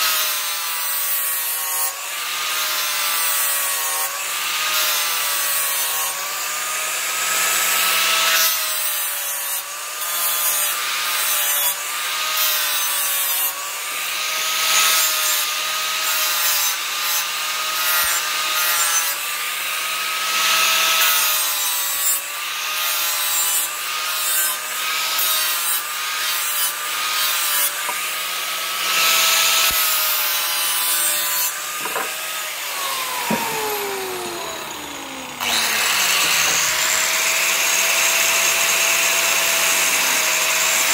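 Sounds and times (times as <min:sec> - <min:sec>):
electric grinder grinding steel: 0:00.0 - 0:40.9
grinder scraping noise: 0:27.3 - 0:40.9.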